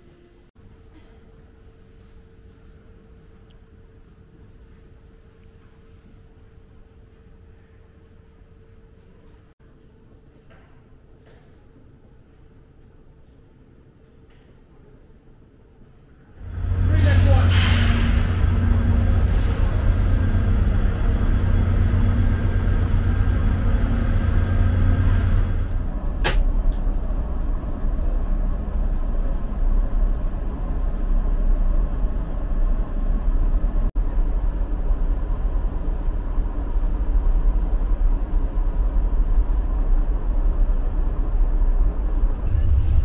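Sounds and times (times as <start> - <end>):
steady hum: 16.3 - 43.0
train rumble from inside car: 16.4 - 43.0.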